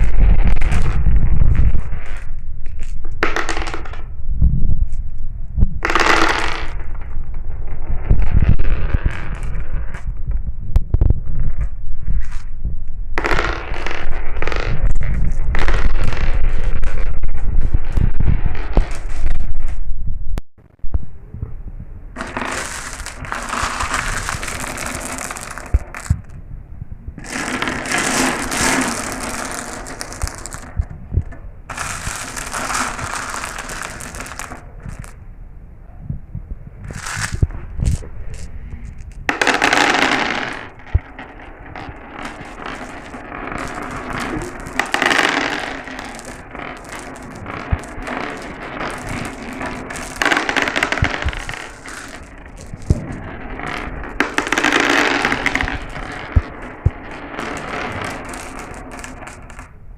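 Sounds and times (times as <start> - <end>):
marbles clicking on track: 0.0 - 4.1, 5.8 - 7.4, 8.0 - 10.1, 13.2 - 19.4, 22.2 - 26.4, 27.2 - 35.2, 36.9 - 59.7
marbles rolling down a track: 0.0 - 4.2, 5.8 - 10.2, 11.1 - 12.5, 13.2 - 19.8, 22.2 - 26.4, 27.2 - 35.2, 36.8 - 59.8.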